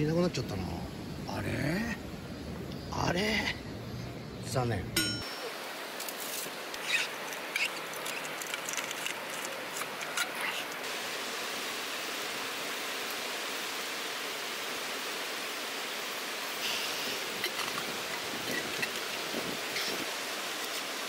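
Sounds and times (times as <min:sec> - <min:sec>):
bottle cap clinking: 0:05.0 - 0:05.4.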